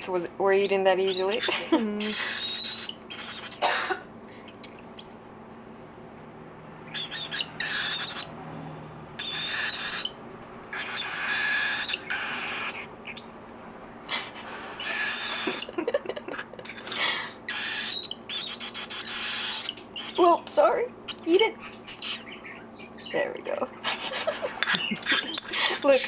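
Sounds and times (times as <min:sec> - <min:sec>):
baby bird raspy begging calls: 0:00.6 - 0:03.8, 0:06.9 - 0:08.4, 0:09.2 - 0:13.3, 0:14.1 - 0:15.7, 0:16.6 - 0:23.3.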